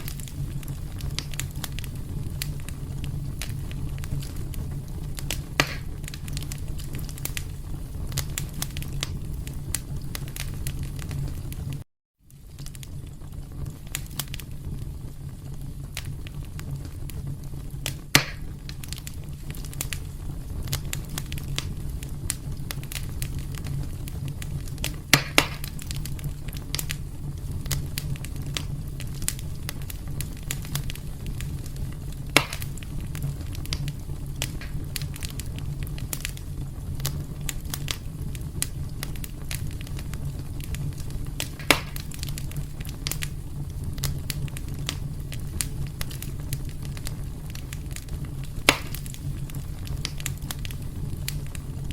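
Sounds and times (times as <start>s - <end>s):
sharp pops of fire: 0.0s - 51.9s
wood fire crackling: 0.0s - 51.9s.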